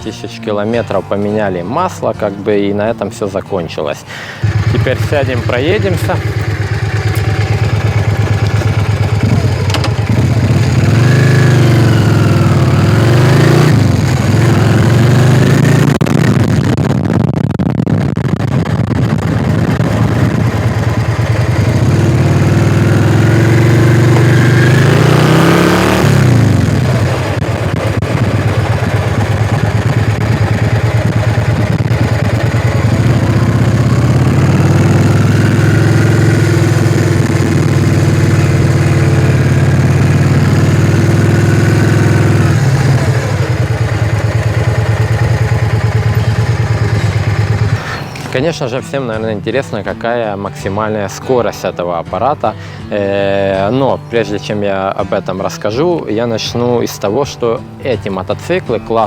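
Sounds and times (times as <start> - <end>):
motorcycle accelerating: 4.2 - 51.6
steady rushing noise: 4.4 - 48.2.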